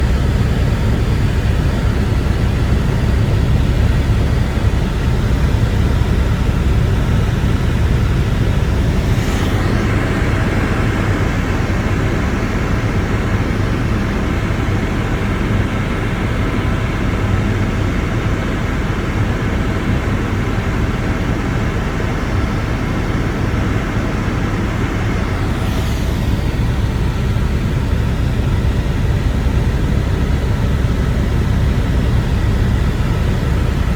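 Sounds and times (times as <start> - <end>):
helicopter engine and rotor drone: 0.0 - 33.9.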